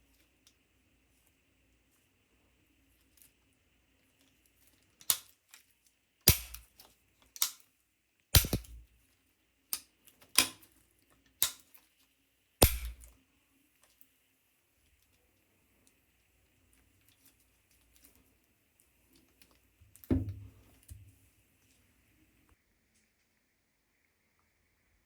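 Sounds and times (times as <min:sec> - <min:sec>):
sharp clicks and knocks: 0:08.4 - 0:08.8, 0:20.0 - 0:21.1.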